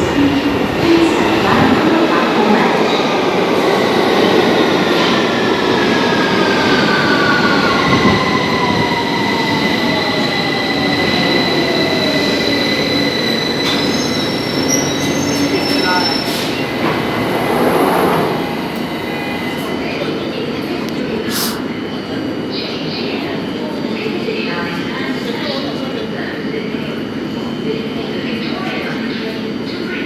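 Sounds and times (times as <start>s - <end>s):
train wheels rumbling on rails: 0.0s - 21.6s
high wheel squeal: 6.8s - 16.6s.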